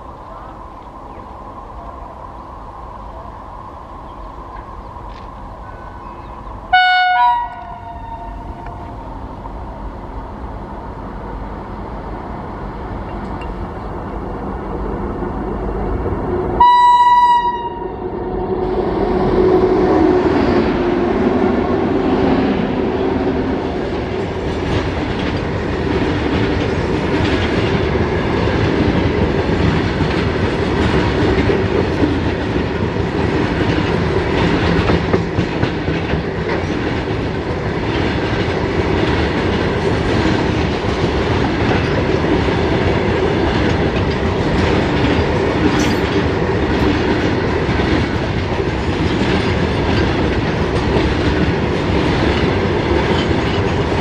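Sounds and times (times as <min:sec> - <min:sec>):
train rumble: 0:00.0 - 0:54.0
train wheels clattering: 0:23.2 - 0:54.0.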